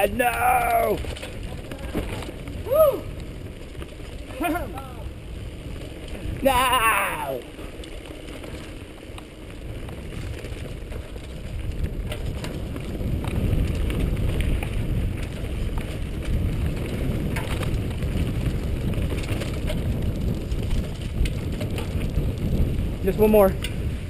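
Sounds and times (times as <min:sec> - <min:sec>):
bike clicks and knocks: 0:00.0 - 0:06.7, 0:07.5 - 0:24.0
mountain bike rattling: 0:00.0 - 0:24.0
wind rumbling on microphone: 0:00.0 - 0:24.0.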